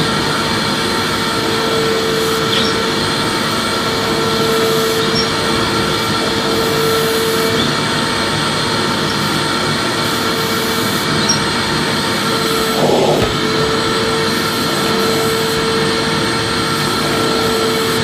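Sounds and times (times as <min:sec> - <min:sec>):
vacuum cleaner running: 0:11.8 - 0:18.0.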